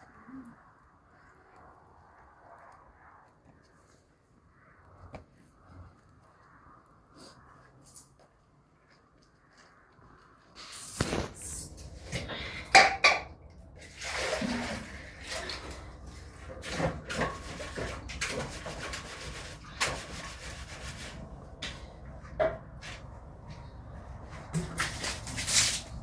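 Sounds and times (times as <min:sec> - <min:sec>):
objects knocking and clattering: 0:12.1 - 0:23.0.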